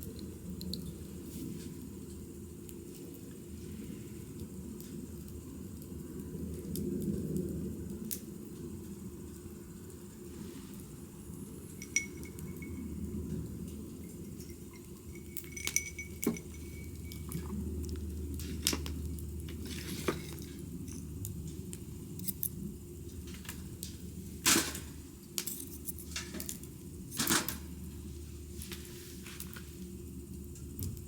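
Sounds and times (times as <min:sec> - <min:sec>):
low steady rumble: 0:08.6 - 0:31.0
small hard objects clinking: 0:11.8 - 0:13.0, 0:13.9 - 0:18.9.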